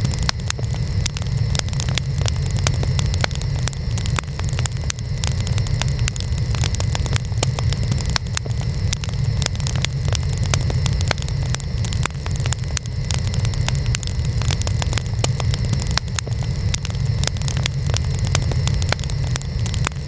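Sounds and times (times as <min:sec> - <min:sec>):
low rumble of flames: 0:00.0 - 0:20.0
wood fire crackling and popping: 0:00.0 - 0:20.0.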